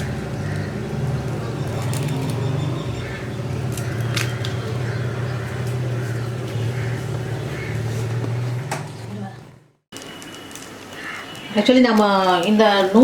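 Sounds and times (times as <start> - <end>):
low mechanical hum: 0.0 - 9.8.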